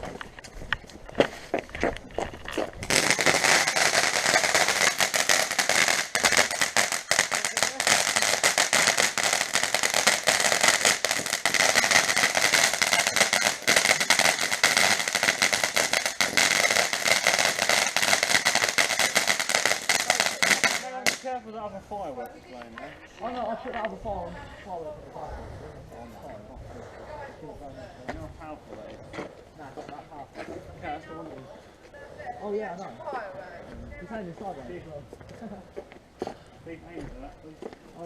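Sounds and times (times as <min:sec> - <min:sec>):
firework fountain hissing and crackling: 0:02.8 - 0:21.5.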